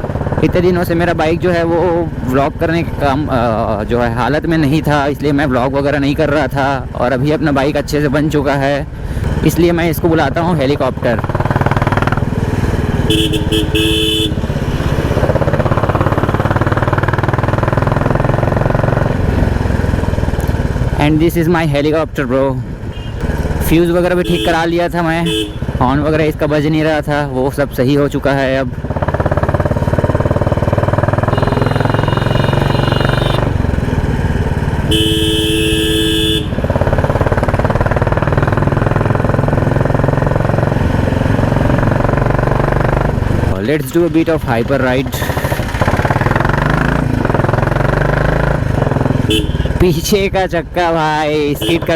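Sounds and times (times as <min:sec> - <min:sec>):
motorcycle engine thumping: 0:10.9 - 0:20.9, 0:28.7 - 0:43.6, 0:45.1 - 0:49.8
vehicle horn tooting: 0:13.0 - 0:14.5, 0:22.9 - 0:23.2, 0:24.2 - 0:25.7, 0:31.3 - 0:33.6, 0:34.8 - 0:36.7, 0:49.2 - 0:49.8, 0:51.6 - 0:51.9.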